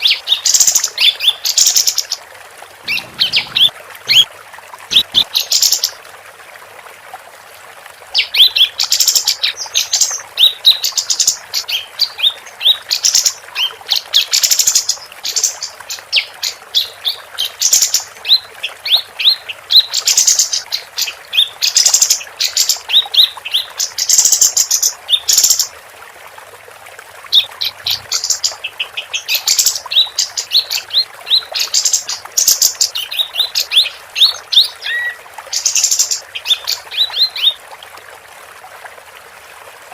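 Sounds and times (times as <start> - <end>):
bird chirping and trilling: 2.8 - 4.3, 4.9 - 5.9, 27.4 - 37.6.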